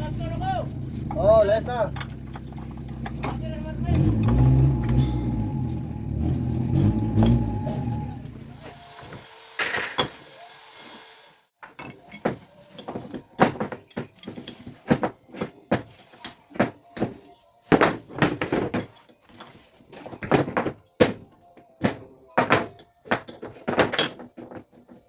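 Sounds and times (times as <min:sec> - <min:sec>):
tools knocking and clanking: 0:01.0 - 0:05.4, 0:11.6 - 0:25.0.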